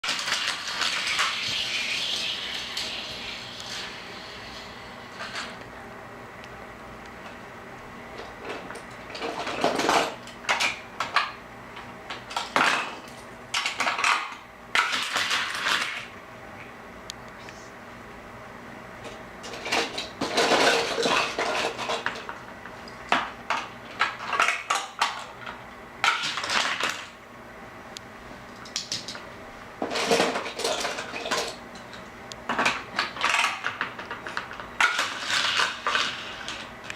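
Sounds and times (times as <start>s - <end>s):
toy cars clattering on plastic track: 0.0s - 3.9s, 9.2s - 11.2s, 12.2s - 16.1s, 19.5s - 22.3s, 26.0s - 27.2s, 29.8s - 31.6s, 32.6s - 36.7s.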